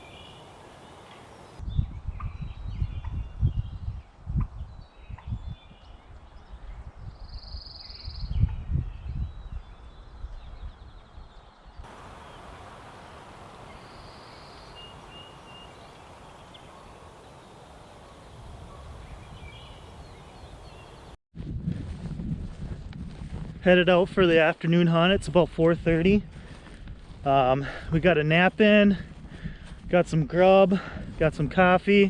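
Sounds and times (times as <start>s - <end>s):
bird calls: 0.0s - 1.6s, 11.9s - 21.2s
steady hiss: 0.0s - 1.6s, 11.9s - 21.2s
wind rumbling on microphone: 0.0s - 32.0s.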